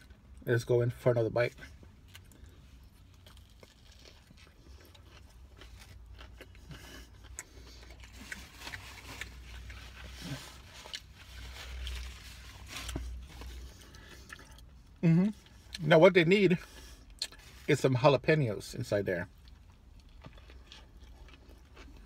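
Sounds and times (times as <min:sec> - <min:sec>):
person chewing food: 0:02.0 - 0:15.8, 0:16.7 - 0:17.5, 0:19.4 - 0:22.0.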